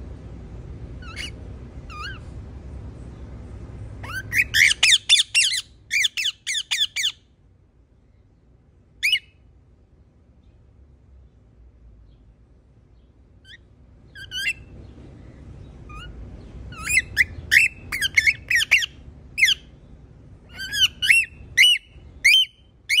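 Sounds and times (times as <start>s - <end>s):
parrot squawking: 1.0s - 2.3s, 4.0s - 7.2s, 9.0s - 9.3s, 14.2s - 14.7s, 15.9s - 19.7s, 20.5s - 23.0s.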